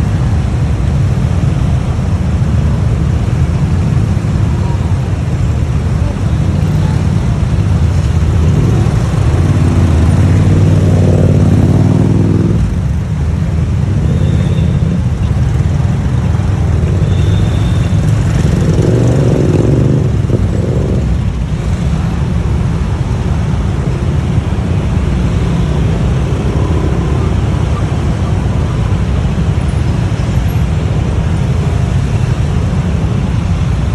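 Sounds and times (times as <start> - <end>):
motorbike engine rumble: 0.0 - 33.9
engines rising in pitch: 6.4 - 12.8.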